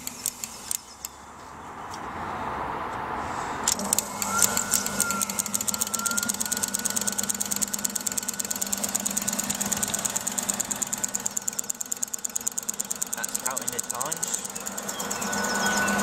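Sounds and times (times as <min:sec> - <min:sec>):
rapid even clicking: 0:00.0 - 0:01.1, 0:03.7 - 0:16.0
washing machine motor humming: 0:04.1 - 0:16.0.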